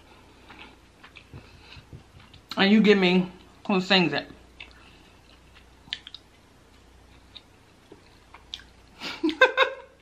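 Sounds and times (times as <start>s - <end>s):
soft chewing: 0.0s - 2.6s, 4.4s - 9.0s.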